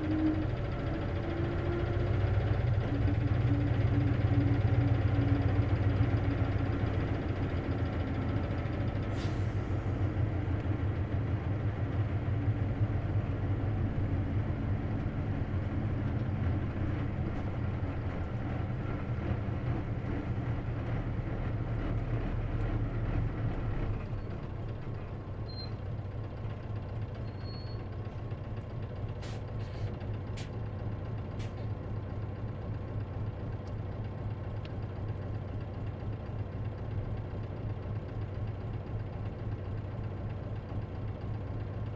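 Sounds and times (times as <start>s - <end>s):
bus diesel engine running: 0.0s - 41.9s.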